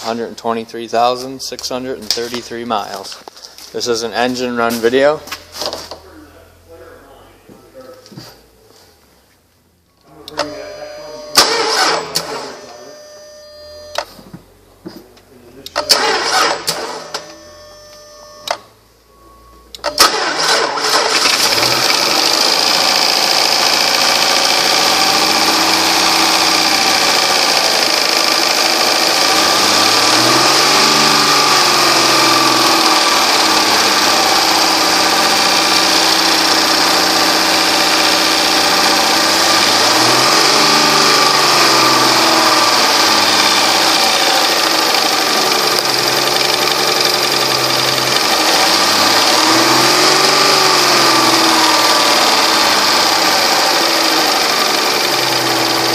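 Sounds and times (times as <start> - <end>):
car engine starting and idling: 0.0 - 9.2, 9.8 - 55.9
car engine revving: 10.2 - 13.2, 15.6 - 18.4, 19.1 - 55.9.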